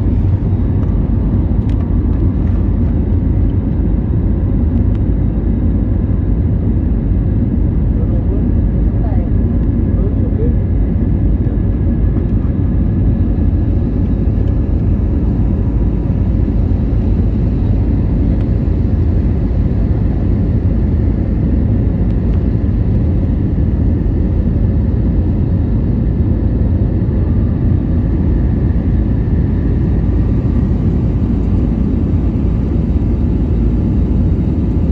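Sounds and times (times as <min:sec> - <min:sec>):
jet engines roaring: 0:00.0 - 0:09.5, 0:11.3 - 0:34.9
faint whine: 0:12.1 - 0:34.9.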